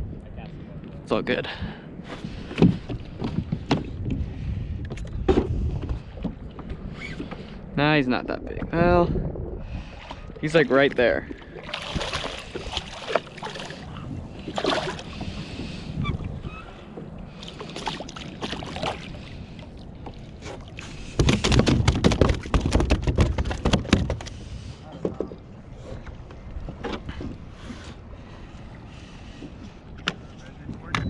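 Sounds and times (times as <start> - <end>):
water splashing: 9.7 - 24.2
knocks on a kayak: 21.2 - 24.3.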